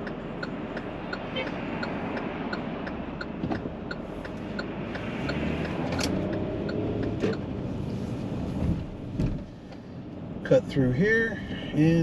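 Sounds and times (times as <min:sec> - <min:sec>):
turn signal ticking: 0:00.0 - 0:11.1
engine and road rumble: 0:00.0 - 0:12.0.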